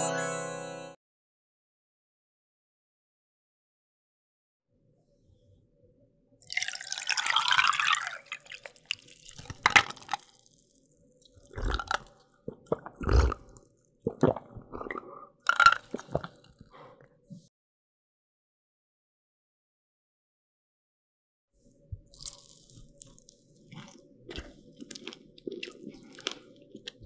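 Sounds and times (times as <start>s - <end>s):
chewing and wet mouth sounds: 7.3s - 16.7s, 22.0s - 27.0s.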